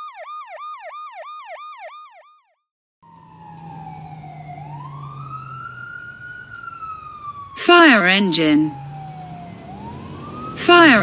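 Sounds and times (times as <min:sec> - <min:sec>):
ambulance siren yelping: 0:00.0 - 0:02.4, 0:03.0 - 0:11.0
fire engine siren wailing: 0:03.0 - 0:11.0
low engine rumble: 0:03.1 - 0:11.0.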